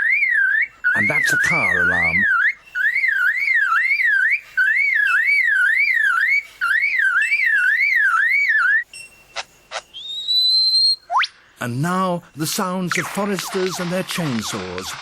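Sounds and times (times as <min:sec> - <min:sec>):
bird imitating car alarm: 0:00.0 - 0:08.9, 0:09.7 - 0:11.4
rising whistle: 0:00.0 - 0:08.9, 0:09.9 - 0:11.3
sharp clicks: 0:12.9 - 0:15.0.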